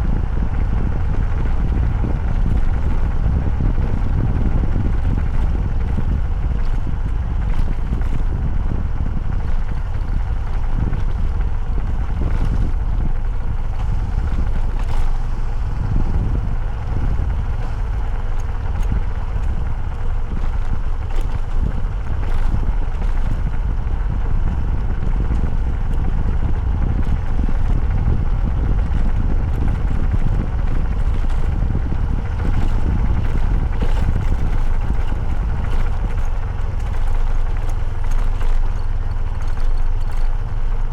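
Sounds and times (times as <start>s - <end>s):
motorcycle engine rumble: 0.0s - 40.9s
wind: 0.0s - 40.9s.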